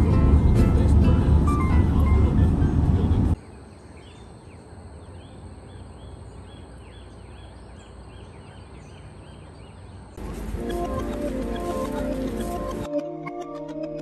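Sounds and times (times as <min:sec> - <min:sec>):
background music: 0:00.0 - 0:03.4, 0:10.2 - 0:14.0
bird chirping: 0:01.5 - 0:12.9.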